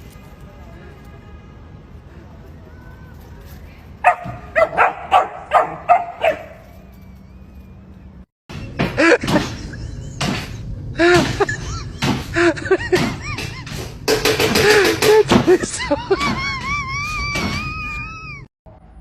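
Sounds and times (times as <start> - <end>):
dog barking: 4.0 - 6.6
dog crying rising and falling: 16.1 - 18.5.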